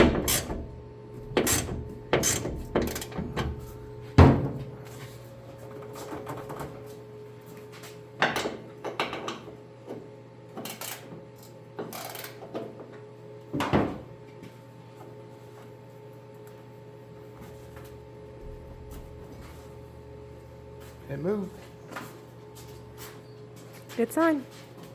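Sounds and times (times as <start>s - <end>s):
hand tools knocking on metal: 0.0s - 3.5s.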